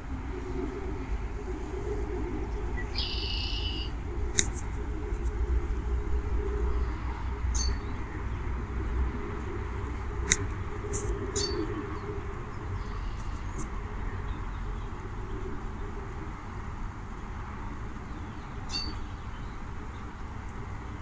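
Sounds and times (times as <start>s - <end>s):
steady low rumble: 0.0s - 21.0s
bird calling: 1.6s - 5.4s, 9.9s - 14.7s.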